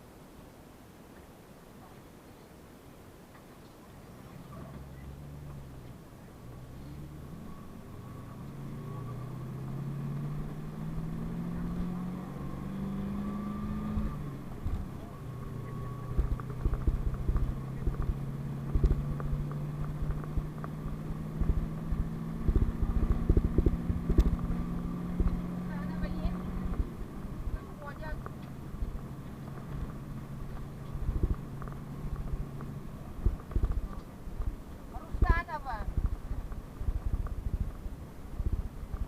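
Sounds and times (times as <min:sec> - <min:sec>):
bus engine pulling away: 0:04.1 - 0:39.0.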